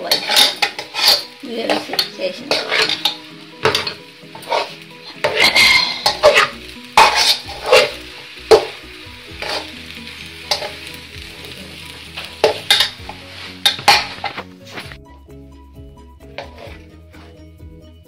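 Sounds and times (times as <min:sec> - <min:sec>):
spoon scraping metal pan: 0:00.0 - 0:09.8, 0:10.4 - 0:10.9, 0:12.2 - 0:14.9, 0:16.2 - 0:17.3.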